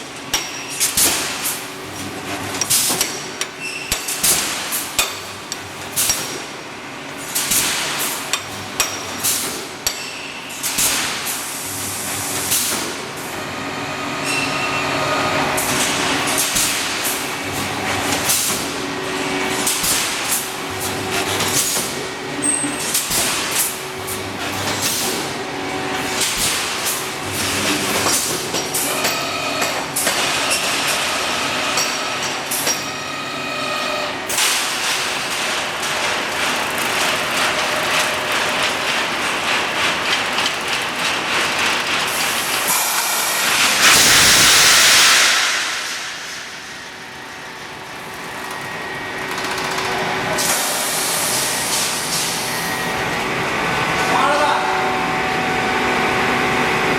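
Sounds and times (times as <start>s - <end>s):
welding machine clatter: 0.0s - 12.9s, 15.6s - 33.0s, 33.6s - 53.2s
machine hum: 35.2s - 50.4s
compressed air hiss: 42.7s - 46.7s.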